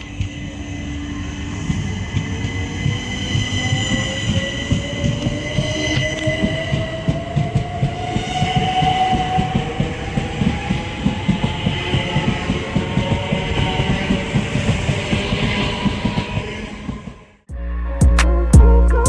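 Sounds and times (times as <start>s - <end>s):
train whine rising in pitch: 0.0s - 19.0s
train wheels clattering on rails: 1.7s - 17.3s.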